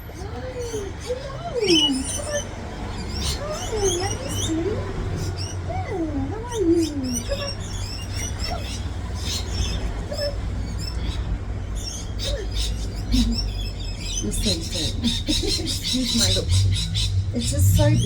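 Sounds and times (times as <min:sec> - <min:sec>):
parrots chirping and chattering: 0:00.0 - 0:18.0
steady low rumble: 0:08.8 - 0:18.0.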